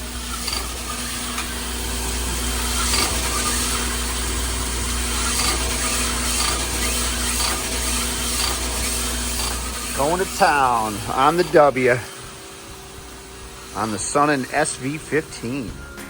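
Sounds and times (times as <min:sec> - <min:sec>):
hone stones rubbing metal: 0:00.0 - 0:12.0
machine hum: 0:00.0 - 0:16.0
sharp ticks: 0:00.2 - 0:01.6.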